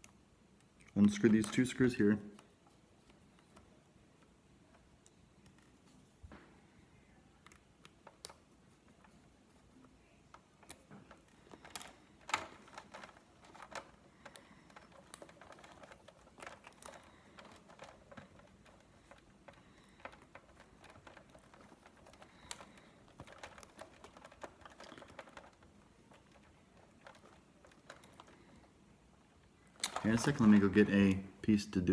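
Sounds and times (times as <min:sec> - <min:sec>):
small plastic clicks: 0:00.0 - 0:05.7, 0:07.4 - 0:30.8
screwdriver scraping plastic: 0:10.6 - 0:28.6.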